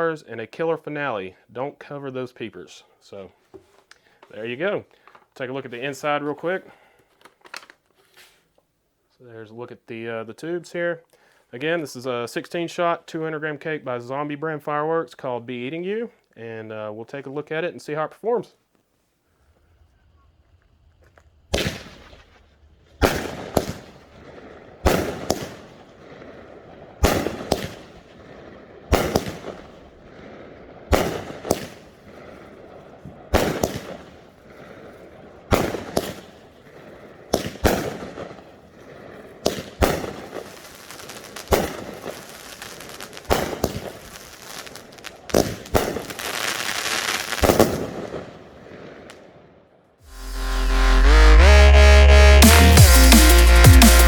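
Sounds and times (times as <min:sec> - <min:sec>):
firework crackling: 0:19.8 - 0:48.2
firework shots: 0:20.9 - 0:49.3.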